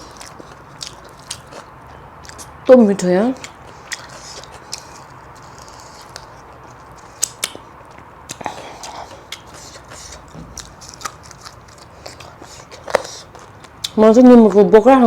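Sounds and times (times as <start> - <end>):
person chewing: 0.0 - 14.0.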